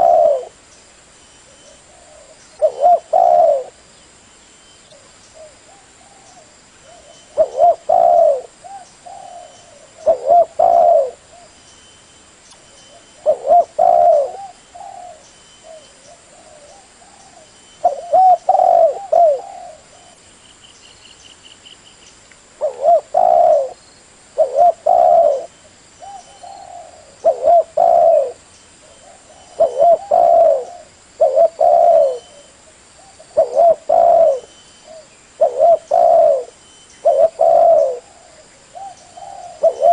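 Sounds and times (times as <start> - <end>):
dove cooing: 0.0 - 0.6, 1.6 - 3.8, 5.4 - 11.5, 12.9 - 20.2, 22.6 - 23.8, 24.4 - 39.9.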